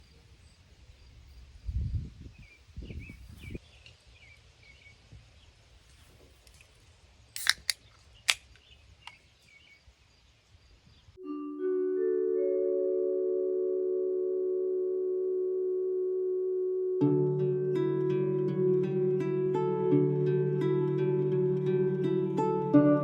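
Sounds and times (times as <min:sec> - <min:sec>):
sharp clicks: 0:07.4 - 0:09.2.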